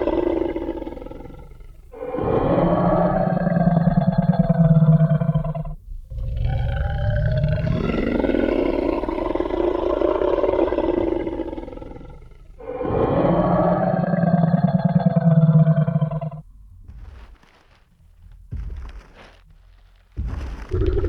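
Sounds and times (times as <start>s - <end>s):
deep dinosaur roar: 0.0s - 16.5s, 20.7s - 21.0s.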